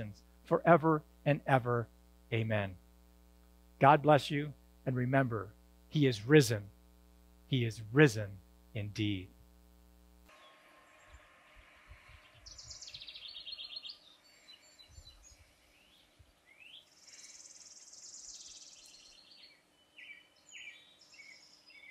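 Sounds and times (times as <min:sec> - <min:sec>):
faint birdsong trills: 0:10.3 - 0:21.9
short rising bird chirps: 0:10.3 - 0:21.9.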